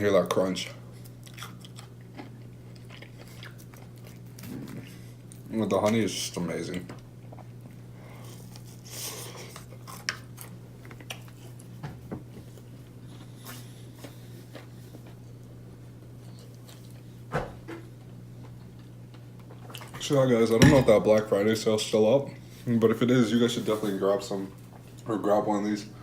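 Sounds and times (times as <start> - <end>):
steady low hum: 0.0 - 26.0
person chewing crispy chicken: 0.8 - 5.5, 7.2 - 11.7, 16.2 - 17.2.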